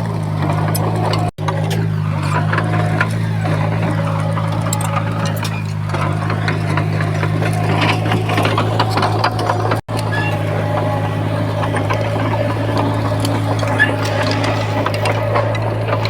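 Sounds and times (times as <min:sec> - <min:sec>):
bulldozer diesel engine humming: 0:00.0 - 0:16.0
clanking and rattling: 0:00.0 - 0:16.0.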